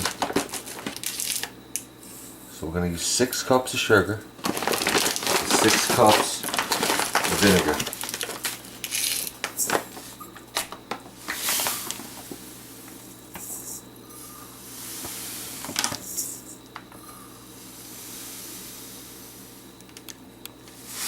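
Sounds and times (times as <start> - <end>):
pouring hiss: 11.2 - 19.8, 20.8 - 21.0.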